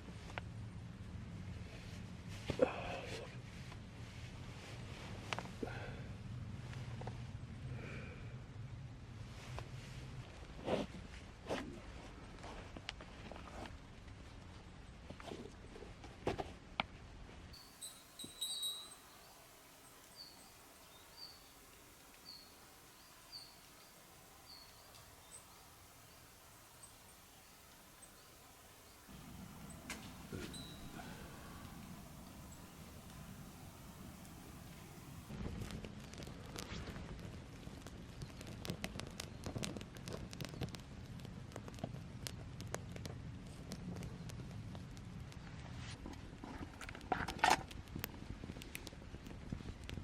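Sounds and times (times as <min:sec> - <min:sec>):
small bird high calls: 0:17.6 - 0:35.0
campfire crackling and popping: 0:17.6 - 0:50.0.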